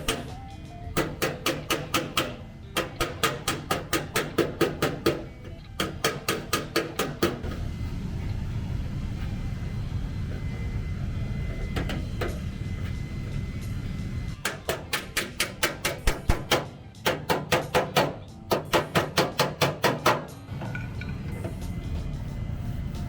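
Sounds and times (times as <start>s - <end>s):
hammer striking sheet metal: 0.0s - 0.4s, 1.0s - 7.6s, 14.4s - 20.3s.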